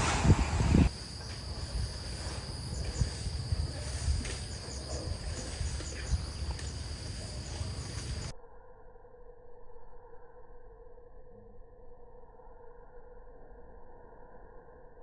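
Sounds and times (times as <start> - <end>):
loud low rumble: 0.0 - 4.2
insects shrilling: 0.9 - 8.3.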